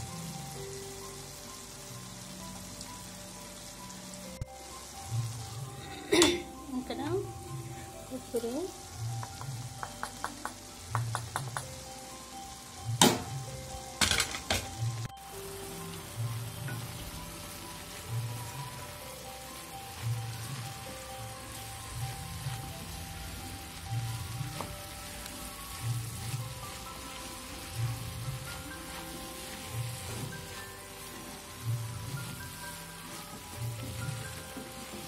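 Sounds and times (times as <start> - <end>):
greens sizzling in a pan: 0.0 - 35.0
knocks against a pan: 13.0 - 13.3, 14.0 - 14.7.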